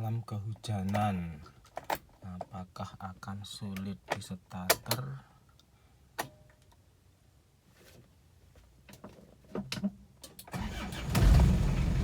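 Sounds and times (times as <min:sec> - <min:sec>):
diesel engine idling: 0:10.6 - 0:12.0.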